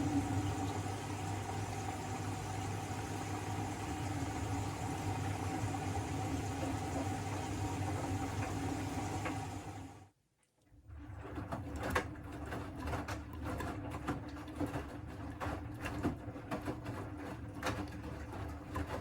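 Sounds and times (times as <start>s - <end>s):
washing machine humming drone: 0.0s - 10.1s, 10.8s - 19.0s.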